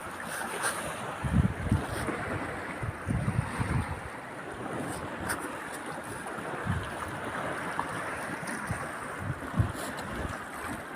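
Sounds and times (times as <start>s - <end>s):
sea surf washing: 0.0s - 10.9s
wind thumping microphone: 1.1s - 5.3s, 6.5s - 7.4s, 8.3s - 10.4s.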